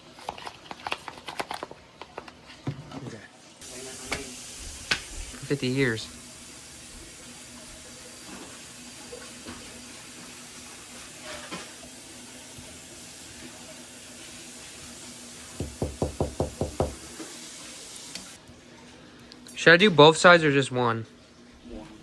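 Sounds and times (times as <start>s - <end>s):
food sizzling in a frying pan: 3.6s - 18.4s
rapid sharp knocks: 15.6s - 17.0s.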